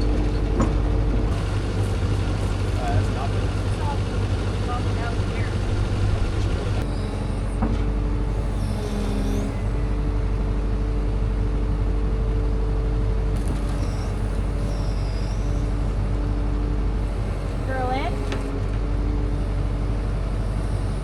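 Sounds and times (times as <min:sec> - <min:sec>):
vehicle engine running: 0:00.0 - 0:21.0
faint high squeaks: 0:08.3 - 0:10.0, 0:13.5 - 0:16.0.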